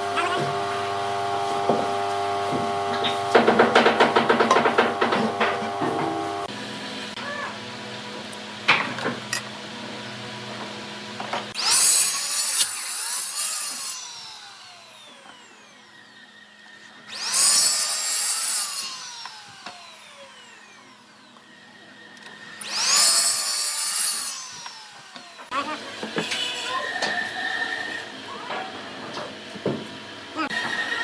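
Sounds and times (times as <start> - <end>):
power tool cutting wood: 0.0 - 31.0
motor whine spinning down: 13.5 - 25.8.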